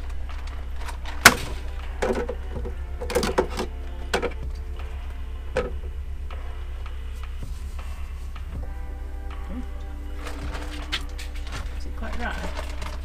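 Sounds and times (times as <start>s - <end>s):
knocks and rattles: 0.0s - 6.0s.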